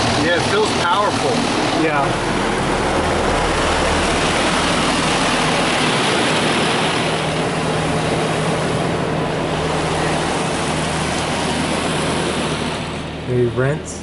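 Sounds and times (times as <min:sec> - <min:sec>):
high-pressure water jets hissing: 0:00.0 - 0:02.2
low steady hum: 0:00.0 - 0:14.0.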